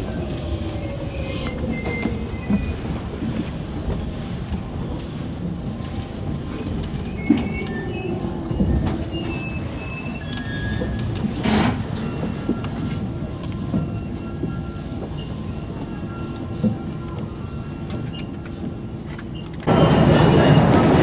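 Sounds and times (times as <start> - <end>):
electric train running slowly: 0.0 - 21.0
wheel squeals: 0.1 - 3.4, 6.6 - 13.0.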